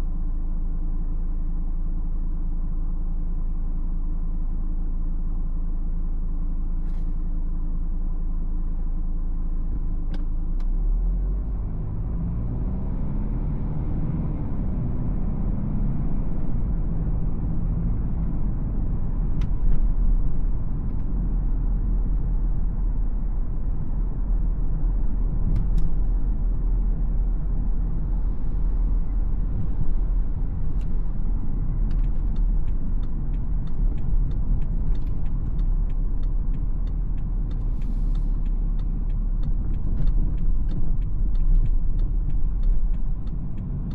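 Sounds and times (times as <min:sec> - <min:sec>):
road and tyre rumble: 0:00.0 - 0:43.9
car engine accelerating: 0:09.7 - 0:43.9
sharp ticks: 0:31.9 - 0:43.9.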